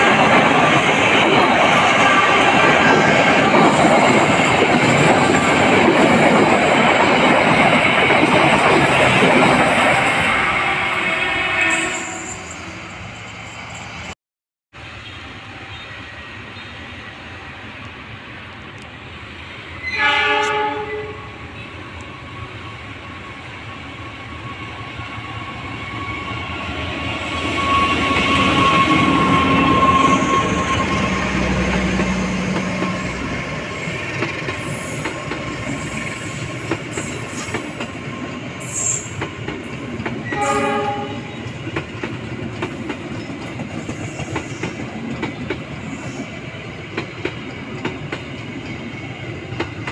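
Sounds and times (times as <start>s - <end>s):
train passing rumble: 0.0s - 49.9s
train horn blast: 1.9s - 3.0s, 10.1s - 12.5s, 19.8s - 21.8s, 40.2s - 41.4s.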